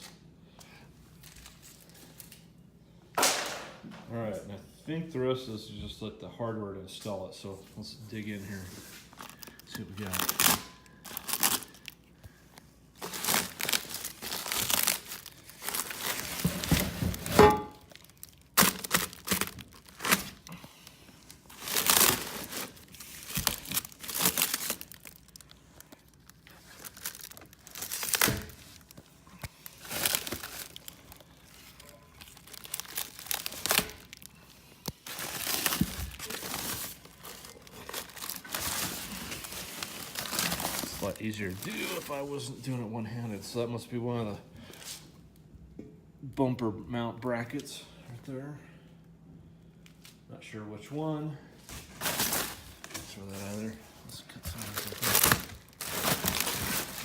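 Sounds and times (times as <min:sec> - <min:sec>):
packing material crinkling and tearing: 0:01.2 - 0:02.5, 0:08.1 - 0:42.5, 0:51.7 - 0:57.0.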